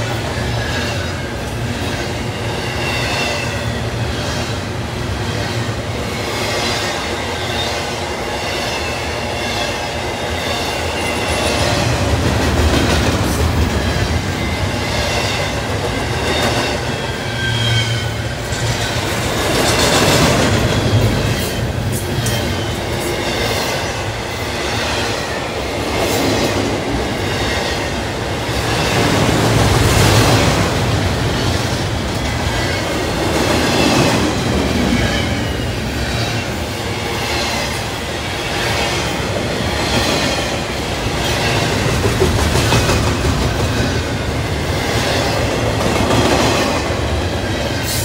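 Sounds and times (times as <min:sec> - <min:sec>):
train wheels rumbling on rail: 0:00.0 - 0:48.0
wheels clickety-clack: 0:11.2 - 0:16.9, 0:18.4 - 0:23.8, 0:38.7 - 0:48.0
faint high wheel squeal: 0:16.6 - 0:18.3.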